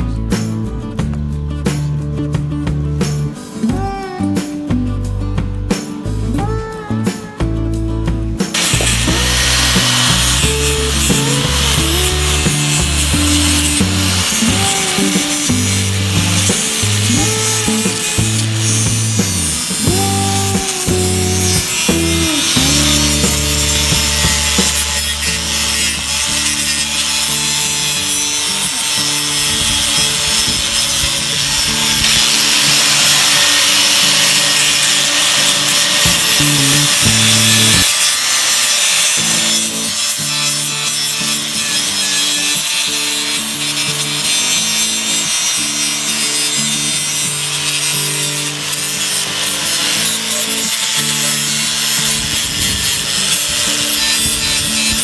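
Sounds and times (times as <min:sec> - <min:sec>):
background music: 0:00.0 - 0:52.4
abrasive sanding rasp: 0:08.5 - 0:55.0.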